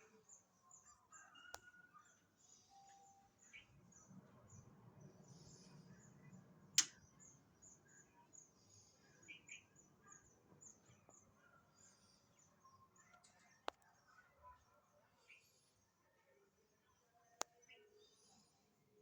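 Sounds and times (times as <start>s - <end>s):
birds chirping faintly: 0.0s - 19.0s
sharp click: 6.8s - 7.0s.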